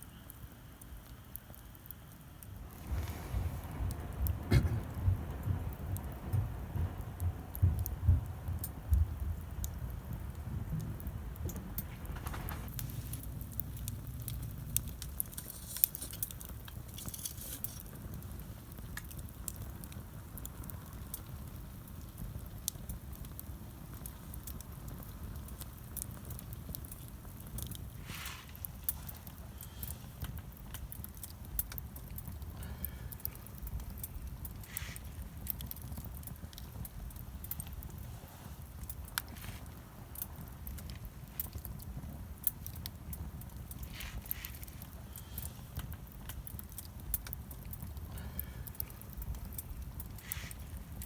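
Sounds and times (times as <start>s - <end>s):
campfire crackling: 0.0s - 51.0s
fire hissing: 1.5s - 6.8s, 7.8s - 51.0s
low rumble: 2.6s - 8.6s.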